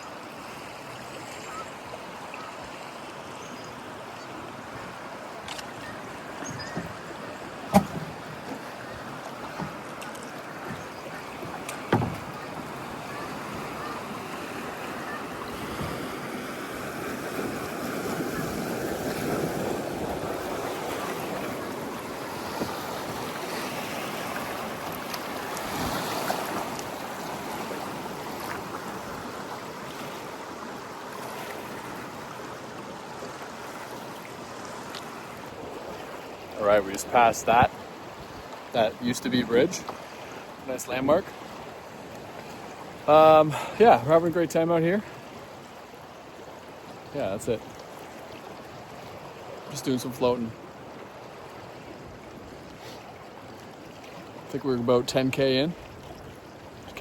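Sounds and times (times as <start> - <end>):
river water rushing around kayak: 0.0 - 57.0
sharp knocks: 7.7 - 8.2.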